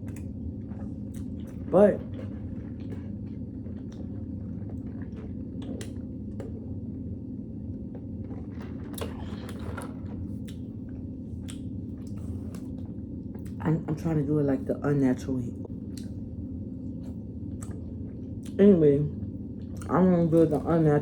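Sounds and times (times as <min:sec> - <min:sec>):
person chewing and mouth smacking: 0:00.0 - 0:06.8, 0:07.9 - 0:13.6, 0:15.8 - 0:16.2, 0:17.0 - 0:18.6
steady low hum: 0:00.0 - 0:21.0.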